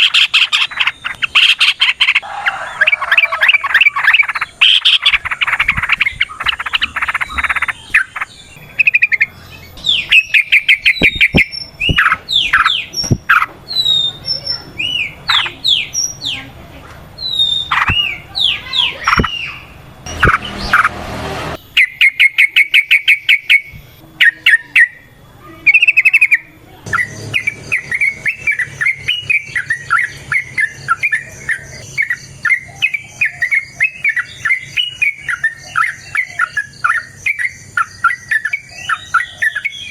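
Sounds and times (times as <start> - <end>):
fast bird trills: 0.0 - 16.4, 21.6 - 25.1, 25.7 - 39.9
bird song with bubbly chattering: 0.0 - 20.8, 21.6 - 39.9
rush of noise: 19.1 - 21.6.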